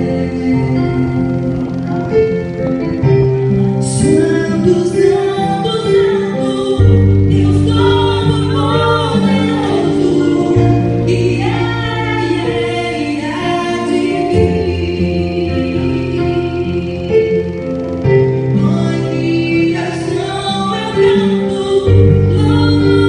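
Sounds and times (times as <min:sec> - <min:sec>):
woman singing worship song: 0:00.0 - 0:01.8, 0:03.8 - 0:18.0, 0:18.6 - 0:23.0
sustained instrumental chords: 0:00.0 - 0:23.0
low bass: 0:06.8 - 0:19.2.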